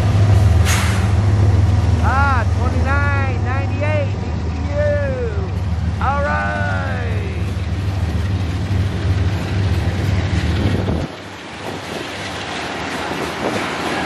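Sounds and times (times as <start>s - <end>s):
diesel locomotive humming: 0.0s - 14.0s
hopper cars rolling on rails: 0.0s - 14.0s
wind noise: 9.6s - 14.0s.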